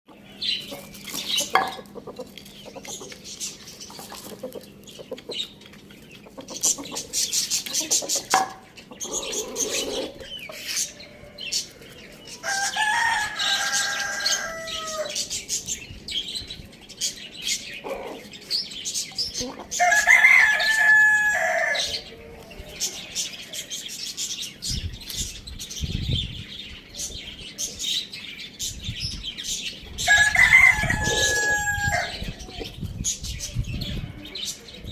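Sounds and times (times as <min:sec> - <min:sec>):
chicken clucks and chirps: 0:00.1 - 0:34.9
rooster crowing: 0:12.4 - 0:15.2, 0:19.8 - 0:21.9, 0:30.1 - 0:32.2.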